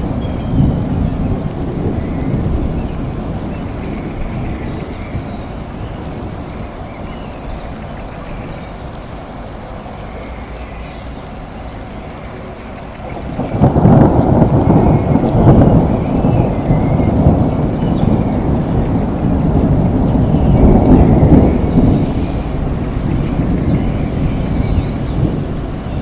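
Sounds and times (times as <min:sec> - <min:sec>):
rolling thunder: 0:00.0 - 0:08.7, 0:12.0 - 0:26.0
steady rain: 0:00.0 - 0:26.0
low background rumble: 0:13.1 - 0:26.0.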